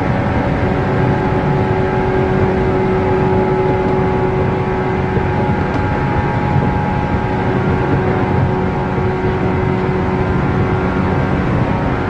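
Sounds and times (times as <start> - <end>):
traction motor hum: 0.0 - 12.0
train wheels rumbling on rail: 0.0 - 12.0.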